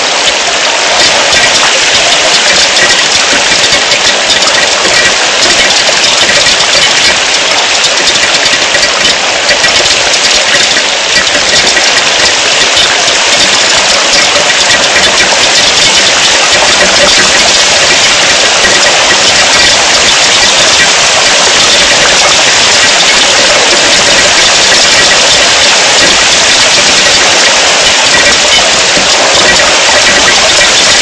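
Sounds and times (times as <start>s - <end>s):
rain falling steadily: 0.0s - 31.0s.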